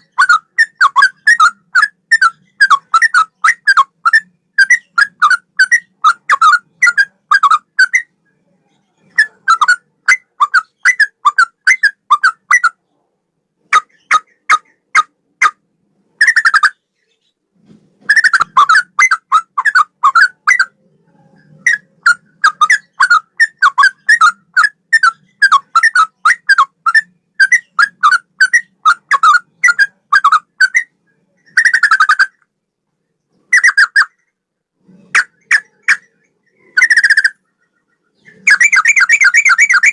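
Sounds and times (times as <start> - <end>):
bulbul singing whistled notes: 36.6 - 39.9.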